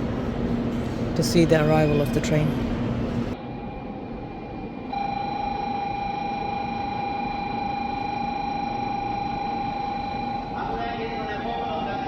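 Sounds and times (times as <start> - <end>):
low station hum: 0.0 - 12.0
steady electronic warning tone: 3.4 - 12.0.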